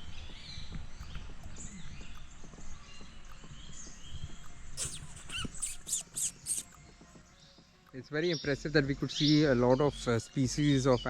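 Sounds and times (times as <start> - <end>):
small birds chirping: 0.0 - 11.0
sharp hissing rustle: 4.8 - 6.8.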